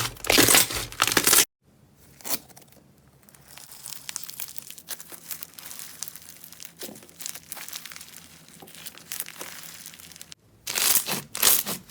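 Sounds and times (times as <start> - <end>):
slime squeezed with crackles and pops: 3.3 - 11.8.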